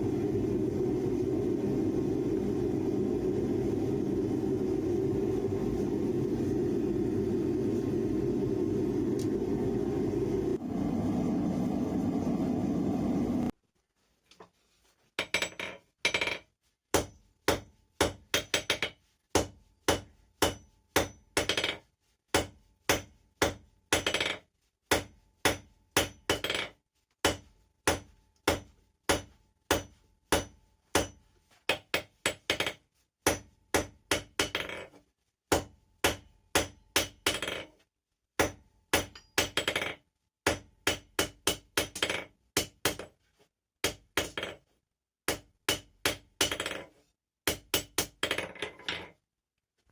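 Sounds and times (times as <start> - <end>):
hammer striking steel on anvil: 17.0 - 21.8, 22.4 - 24.3, 24.9 - 26.6, 27.2 - 32.7, 33.3 - 34.7, 35.5 - 37.6, 38.4 - 39.8, 40.5 - 43.1, 45.3 - 46.7, 47.5 - 48.3.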